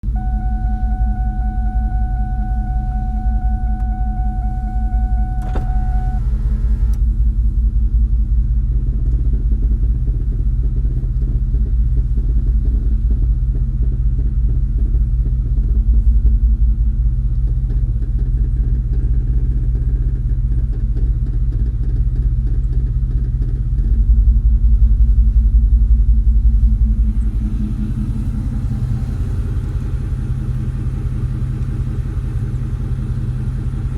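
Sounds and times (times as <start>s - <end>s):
steady high tone: 0.0s - 7.0s
car engine idling: 0.0s - 33.9s
front end creaking: 2.3s - 7.0s.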